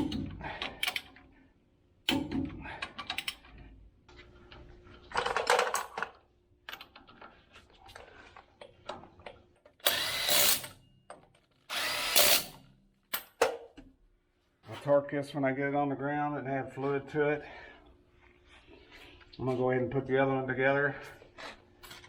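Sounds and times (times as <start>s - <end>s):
metal clicks and clanks: 2.1s - 3.6s
power tool driving bolts: 9.8s - 10.8s, 11.7s - 13.6s.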